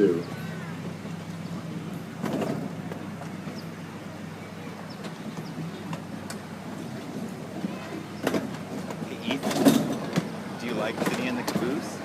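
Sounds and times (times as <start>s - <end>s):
miniature train rumbling: 0.8s - 12.0s
wheel and rail clicks: 4.8s - 12.0s.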